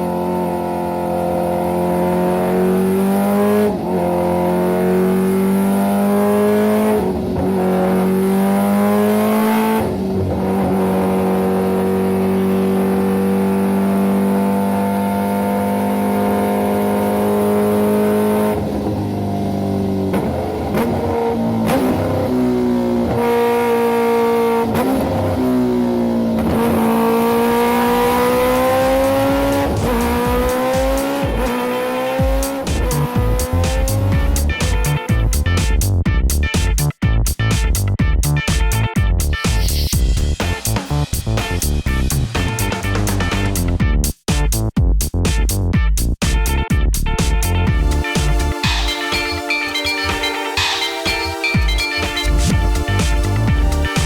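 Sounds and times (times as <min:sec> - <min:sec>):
motorcycle engine revving: 0:00.0 - 0:36.7, 0:47.6 - 0:54.0.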